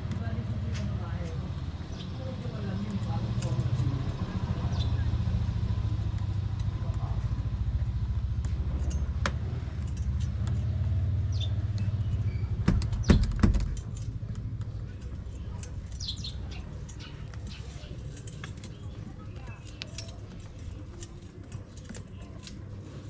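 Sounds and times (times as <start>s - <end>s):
vehicle engine running: 0.0s - 23.0s
metallic clicks and thumps: 11.7s - 19.0s.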